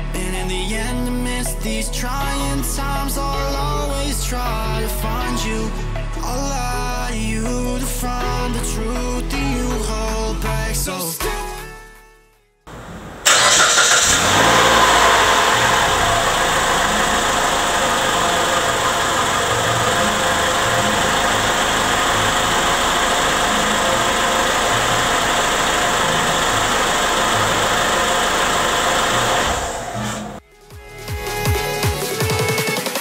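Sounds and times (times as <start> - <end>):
car engine idling: 12.7 - 30.4.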